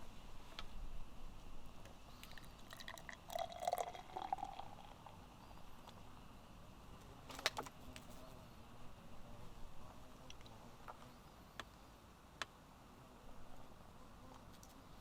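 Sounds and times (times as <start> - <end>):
liquid pouring: 2.2 - 5.2.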